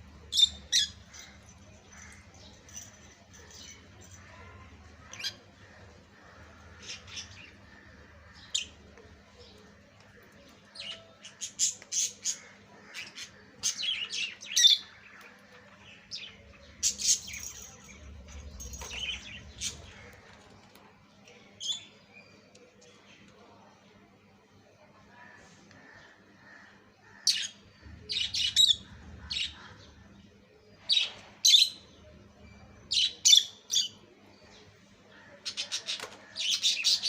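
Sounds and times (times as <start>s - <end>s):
lovebirds squawking and chirping: 0.2s - 4.2s.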